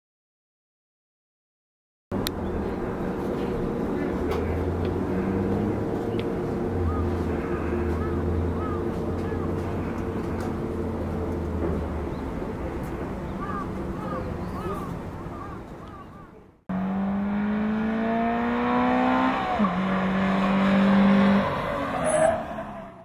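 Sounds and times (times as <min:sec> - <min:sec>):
engine running steadily: 0:02.1 - 0:16.0
faint voices: 0:12.3 - 0:16.6.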